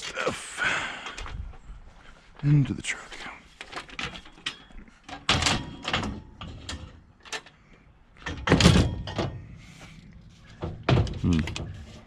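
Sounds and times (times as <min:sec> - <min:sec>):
scrap knocking and clanking: 0:10.4 - 0:12.0.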